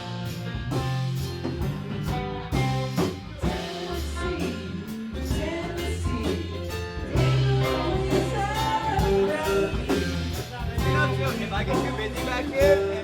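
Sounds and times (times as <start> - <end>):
bass guitar: 0.0 - 13.0
drum kit: 0.0 - 13.0
electric guitar: 0.0 - 13.0
person singing: 3.4 - 13.0.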